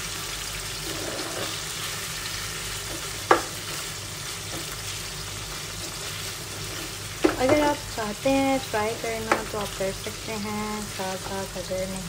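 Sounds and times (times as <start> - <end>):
chicken sizzling in oil: 0.0 - 12.0
spatula knocking against pan: 3.2 - 3.6, 9.2 - 9.5.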